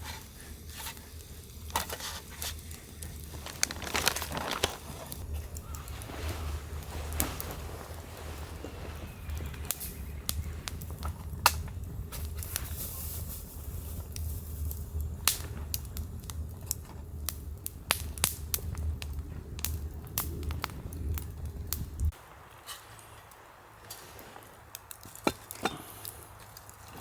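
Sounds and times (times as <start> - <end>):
campfire crackling and popping: 0.0 - 27.0
low steady rumble: 2.7 - 22.3.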